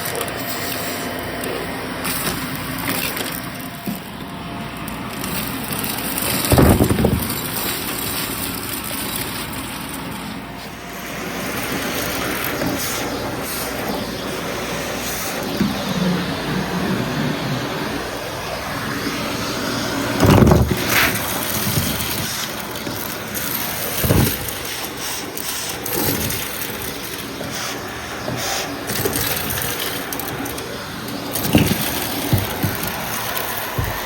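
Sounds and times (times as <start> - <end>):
vacuum cleaner running: 0.0 - 34.0
knocks and bumps: 5.3 - 9.2, 20.2 - 25.1, 25.8 - 34.0.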